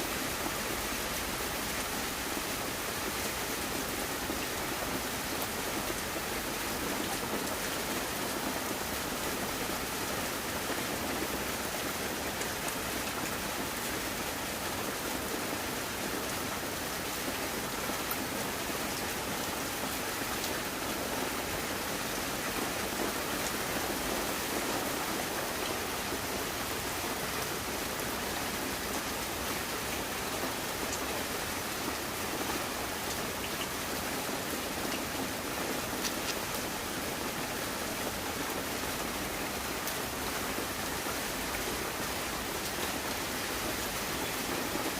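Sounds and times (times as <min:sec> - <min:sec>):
rushing water: 0:00.0 - 0:44.9.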